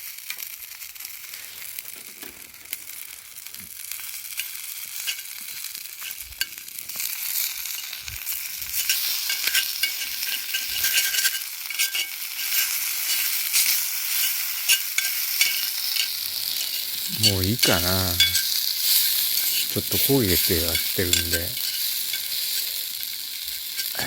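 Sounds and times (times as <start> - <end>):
food sizzling in a pan: 0.0 - 24.0.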